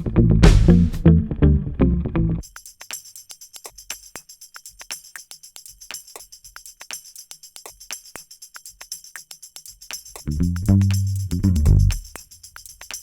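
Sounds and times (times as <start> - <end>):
tambourine jingling music: 2.4 - 13.0.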